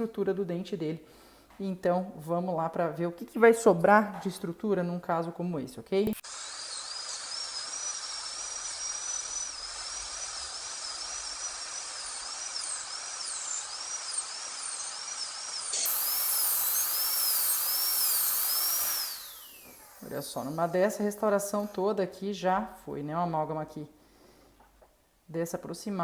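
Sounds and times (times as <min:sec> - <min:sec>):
dental drill whine with water spray: 0:06.2 - 0:21.8.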